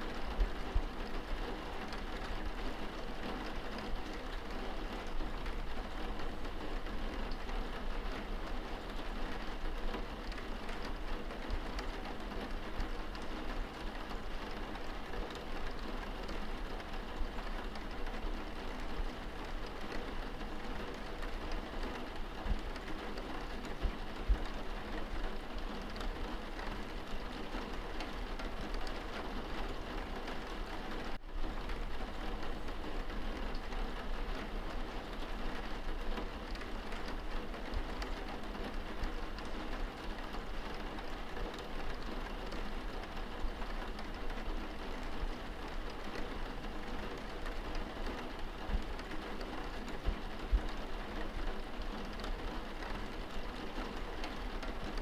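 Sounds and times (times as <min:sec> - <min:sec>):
rain on window glass: 0:00.0 - 0:55.0.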